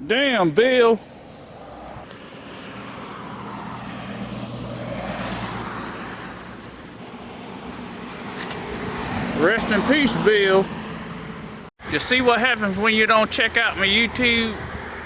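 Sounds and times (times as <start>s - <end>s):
vehicle passing: 1.0s - 12.0s.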